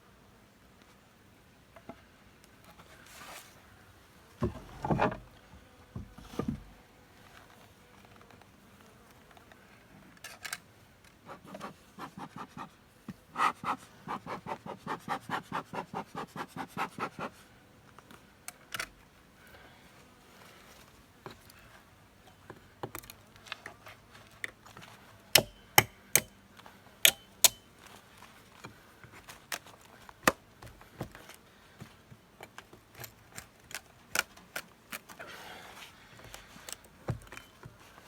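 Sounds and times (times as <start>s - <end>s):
wood rubbing and scraping: 4.4s - 5.3s.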